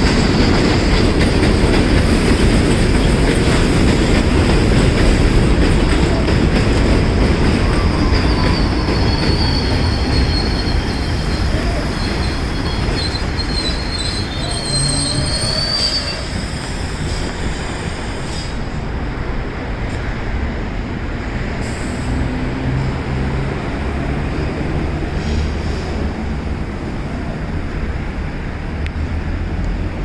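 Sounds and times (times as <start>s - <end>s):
subway train rumbling: 0.0s - 30.0s
train wheels squealing on rail: 7.5s - 18.9s.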